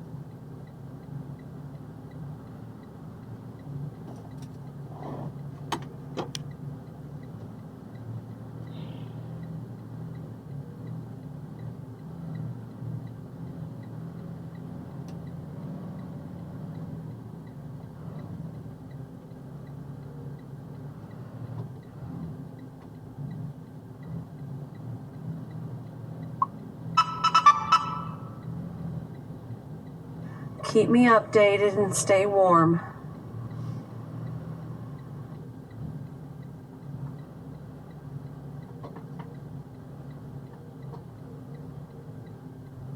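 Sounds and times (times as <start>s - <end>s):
faint regular ticking: 0.0s - 27.0s, 28.0s - 42.9s
diesel engine running poorly: 26.4s - 37.7s.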